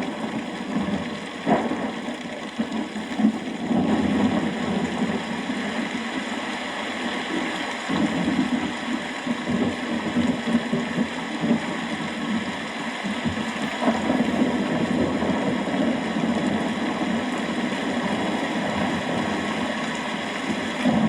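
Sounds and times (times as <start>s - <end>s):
rolling thunder: 0.0s - 5.6s, 13.2s - 21.0s
steady rain falling: 0.0s - 21.0s.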